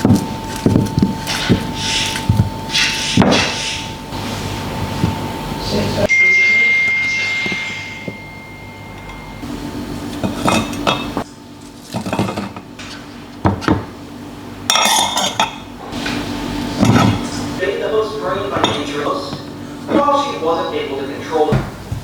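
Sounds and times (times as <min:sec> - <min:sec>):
clear ringing note: 0:05.2 - 0:11.2
dishes and utensils clinking: 0:06.0 - 0:13.1, 0:14.7 - 0:17.6, 0:18.4 - 0:20.2.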